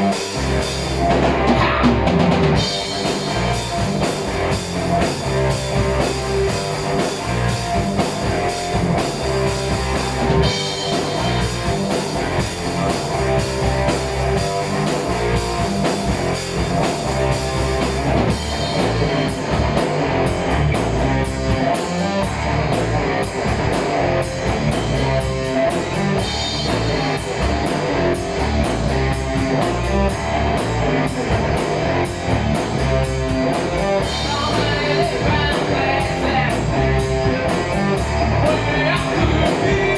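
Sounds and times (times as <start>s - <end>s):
heavy metal band playing live: 0.0s - 39.9s.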